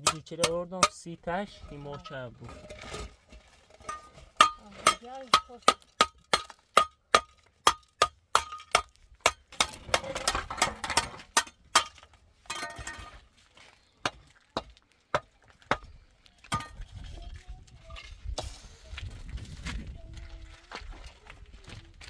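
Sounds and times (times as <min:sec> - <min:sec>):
scraping: 0:00.0 - 0:14.8.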